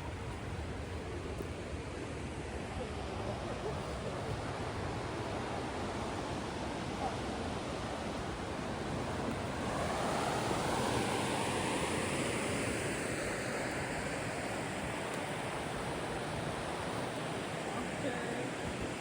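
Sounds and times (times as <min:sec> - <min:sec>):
river rapids rushing: 0:05.0 - 0:19.0.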